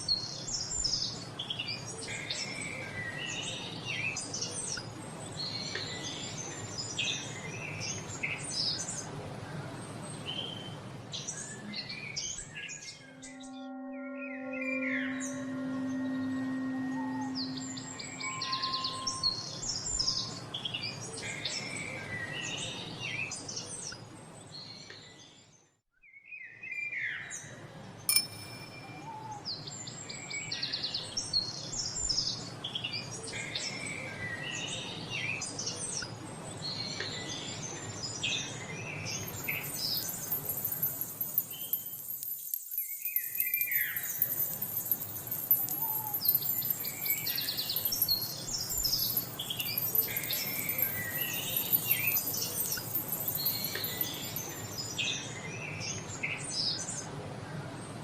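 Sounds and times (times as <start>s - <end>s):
songbirds chirping and singing: 39.1s - 55.4s
steady high hiss: 39.2s - 55.2s.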